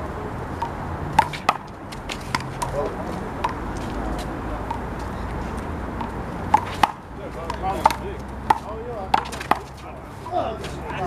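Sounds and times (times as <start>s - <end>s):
rubber ball hitting wall and court: 0.6s - 2.8s, 6.0s - 9.8s.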